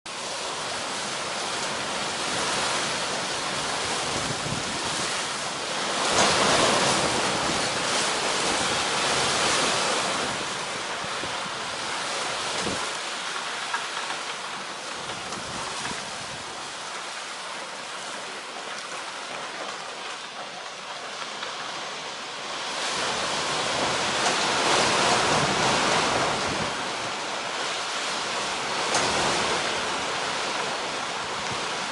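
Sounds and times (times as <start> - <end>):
strong wind gusting: 2.0 - 13.0, 22.5 - 31.9.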